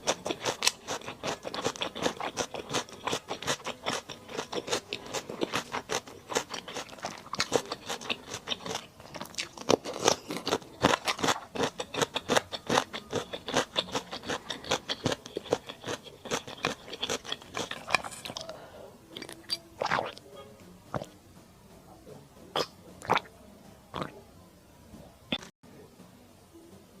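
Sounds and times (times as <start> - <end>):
chewing crunchy food: 0.0 - 20.2, 20.9 - 21.1, 22.6 - 23.3.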